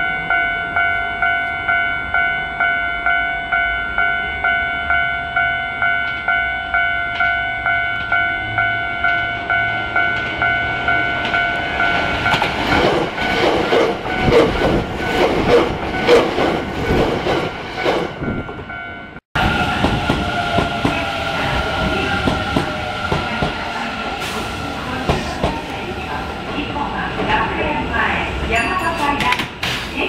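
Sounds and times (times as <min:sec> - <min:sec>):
train whine: 0:00.0 - 0:28.7
train wheels clacking: 0:11.2 - 0:18.2.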